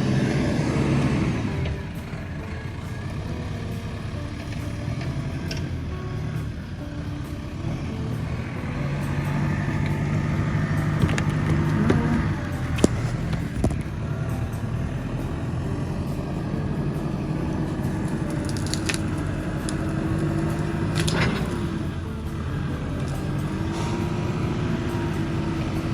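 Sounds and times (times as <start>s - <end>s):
tractor diesel engine under load: 0.0s - 25.9s
branches cracking and snapping: 17.9s - 21.8s.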